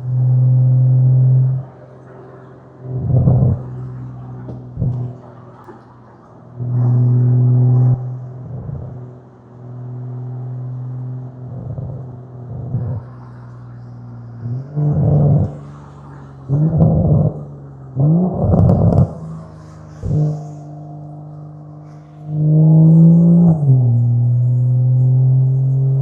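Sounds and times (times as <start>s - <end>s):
car exhaust droning: 0.0s - 26.0s
car throttle blips: 2.9s - 5.8s, 11.4s - 13.0s, 14.5s - 15.6s, 16.5s - 19.4s, 20.0s - 21.3s.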